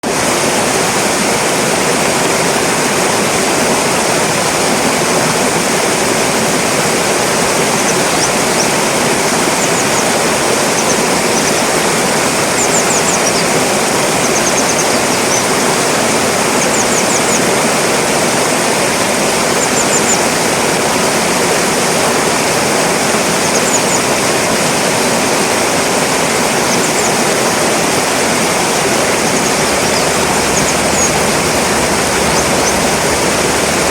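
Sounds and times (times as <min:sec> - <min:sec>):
stream water rushing: 0:00.0 - 0:33.9
high sharp bird calls: 0:07.4 - 0:17.6, 0:23.3 - 0:24.2, 0:26.4 - 0:33.9.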